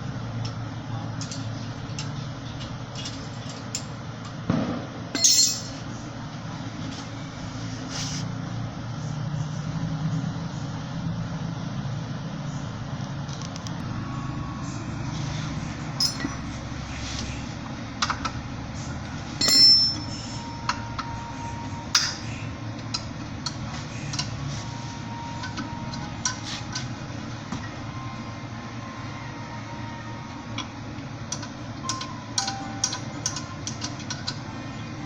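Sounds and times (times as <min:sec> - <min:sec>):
ringing metal clank: 0:05.1 - 0:05.8, 0:16.0 - 0:16.4, 0:19.4 - 0:20.4.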